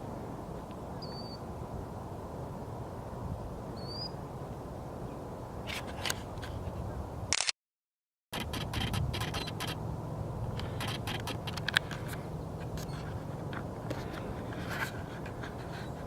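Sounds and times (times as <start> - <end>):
bird chirps: 1.0 - 1.4, 3.8 - 4.2
sharp clicks: 7.3 - 7.6, 8.4 - 9.8, 10.6 - 12.9
low outdoor rumble: 8.4 - 16.0.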